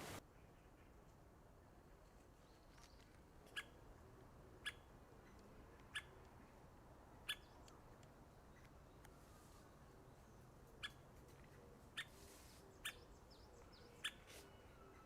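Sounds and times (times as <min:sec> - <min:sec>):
woodpecker call notes: 0:07.2 - 0:07.6.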